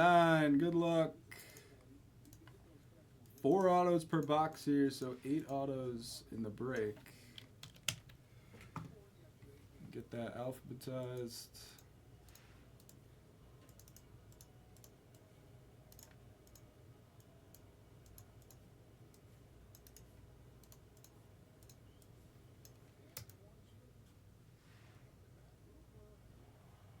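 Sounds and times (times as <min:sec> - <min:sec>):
computer keyboard and mouse clicks: 0:07.4 - 0:08.9, 0:13.6 - 0:15.2, 0:15.9 - 0:16.6, 0:19.7 - 0:23.4.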